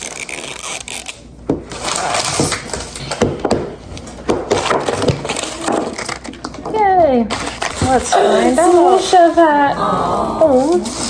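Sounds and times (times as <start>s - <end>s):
plastic package rustling: 4.0s - 9.3s.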